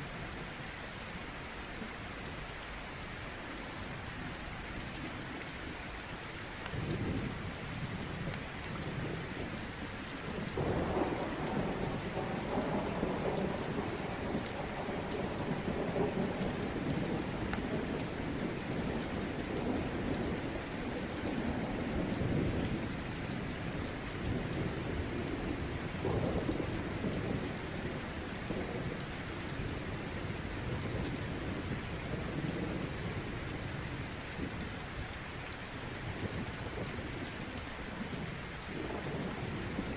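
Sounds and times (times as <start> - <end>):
steady rain: 0.0 - 39.9
rolling thunder: 10.4 - 23.0, 24.2 - 29.0, 38.8 - 39.9.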